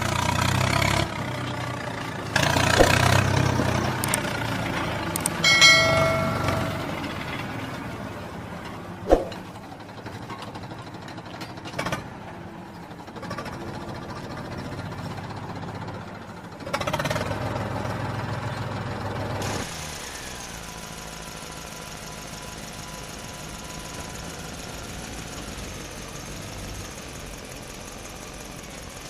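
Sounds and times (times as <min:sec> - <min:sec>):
sharp knock: 0:02.8 - 0:03.1, 0:09.1 - 0:09.4.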